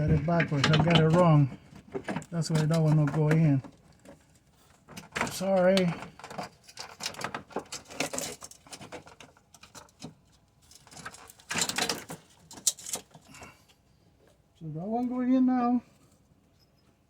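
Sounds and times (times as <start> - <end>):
car parts clicking and scraping: 0.0 - 15.2.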